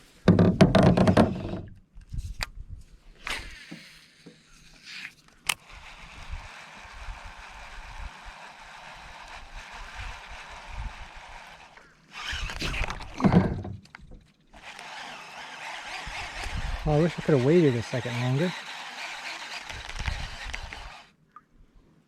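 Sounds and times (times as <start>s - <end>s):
water and wind hiss: 3.2s - 13.2s.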